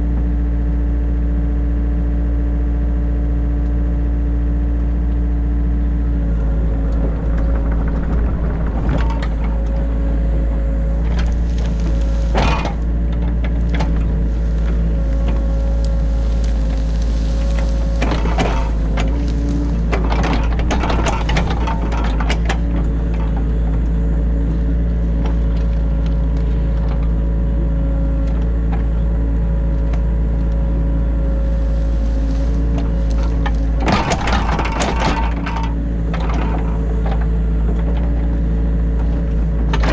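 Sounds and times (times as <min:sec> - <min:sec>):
excavator diesel engine running: 0:00.0 - 0:39.9
machine clunks and clatters: 0:06.3 - 0:29.2, 0:31.3 - 0:39.9.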